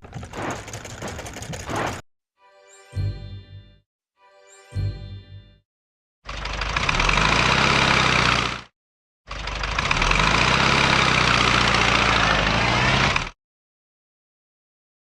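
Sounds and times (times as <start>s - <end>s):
heavy vehicle engine: 6.3s - 8.7s, 9.3s - 13.4s.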